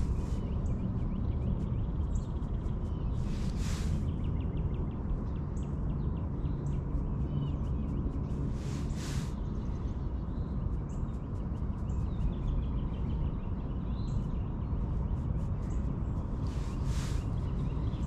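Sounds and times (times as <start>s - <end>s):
faint bird chirps: 0.0s - 18.0s
low outdoor rumble: 0.0s - 18.0s
brief rushing hiss: 3.3s - 4.0s, 8.6s - 9.4s.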